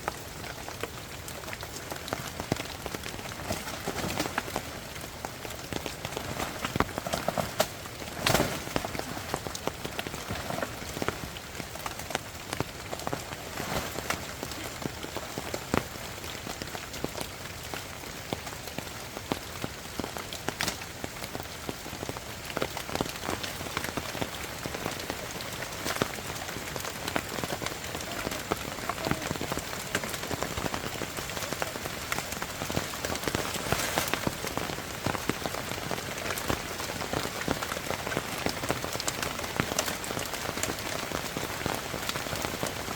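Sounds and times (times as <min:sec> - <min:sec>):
rain falling: 0:00.0 - 0:42.9
raindrop strikes: 0:18.3 - 0:42.9.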